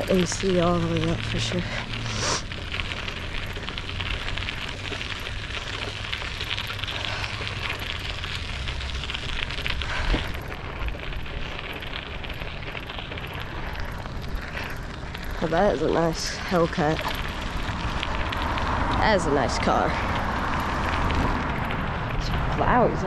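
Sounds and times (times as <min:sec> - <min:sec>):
wind rushing over microphone: 0:07.4 - 0:23.0.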